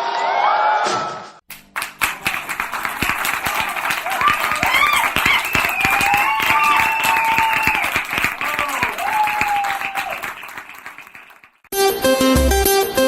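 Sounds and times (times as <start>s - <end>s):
crowd applauding and cheering: 1.5s - 11.7s
shouts and whistles: 3.8s - 10.6s
music: 11.7s - 13.0s.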